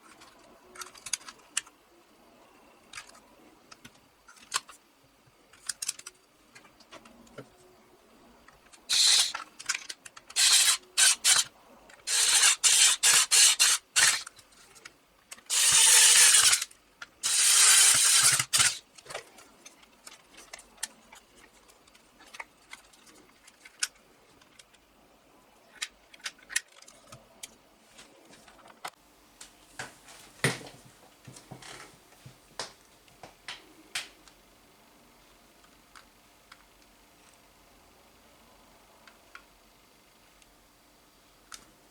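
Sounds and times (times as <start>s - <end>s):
rapid rasping strokes: 10.4s - 11.5s.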